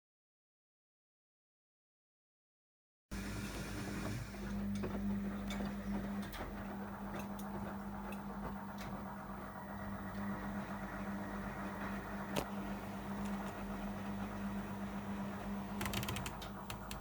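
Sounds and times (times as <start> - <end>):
washing machine running: 3.1 - 17.0.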